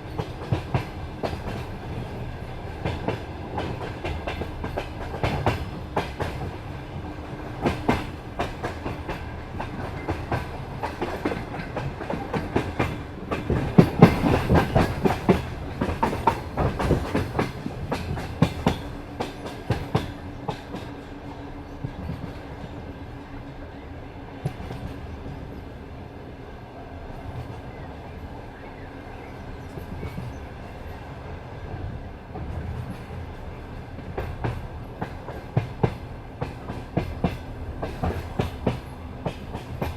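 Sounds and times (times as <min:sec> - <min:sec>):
train rolling rumble: 0:00.0 - 0:39.9
train wheels clattering over rail joints: 0:00.1 - 0:06.7, 0:07.6 - 0:21.2, 0:32.3 - 0:39.9.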